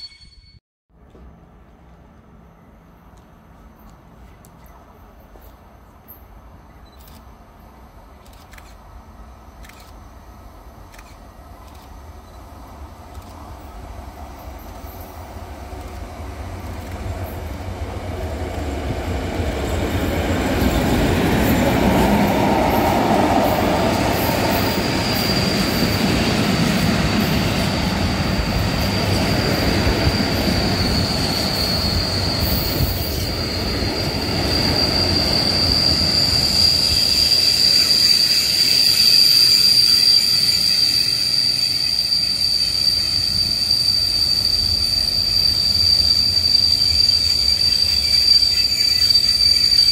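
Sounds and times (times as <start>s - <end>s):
freight train rumbling past: 8.8s - 49.9s
high wheel squeal: 19.3s - 49.9s.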